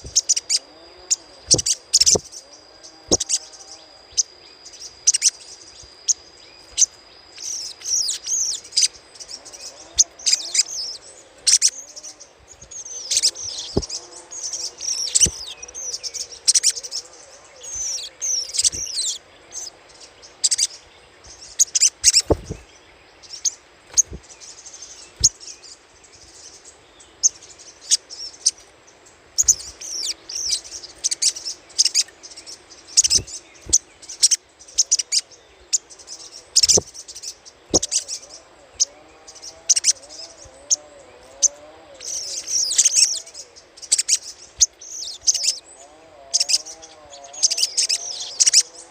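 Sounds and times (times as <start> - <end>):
bird chattering calls: 0.0 - 2.4, 3.0 - 3.6, 12.9 - 17.0, 17.6 - 19.7, 33.0 - 35.8, 36.5 - 37.0, 37.7 - 48.7.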